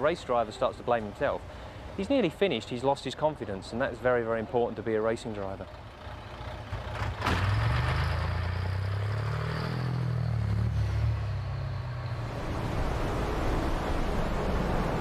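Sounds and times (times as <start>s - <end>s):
truck engine revving hard: 6.6s - 13.3s
steady rush of noise: 12.1s - 15.0s.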